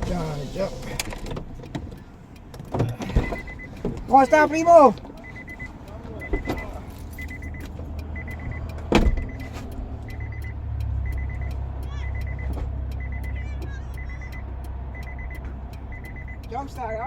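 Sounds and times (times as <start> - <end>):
car engine idling: 0.0 - 17.0
car warning chime beeps: 0.0 - 17.0
loud thump: 8.9 - 9.3.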